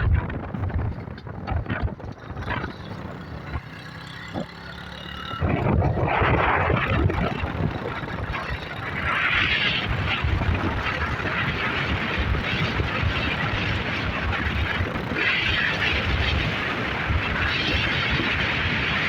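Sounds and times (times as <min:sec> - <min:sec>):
motorcycle engine running: 0:00.0 - 0:19.0
rushing noise: 0:05.4 - 0:19.0.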